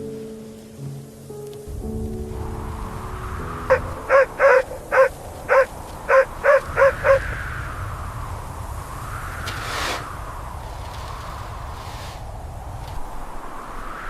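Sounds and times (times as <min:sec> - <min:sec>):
blizzard wind: 0:00.0 - 0:14.0
dog barking: 0:03.7 - 0:07.3.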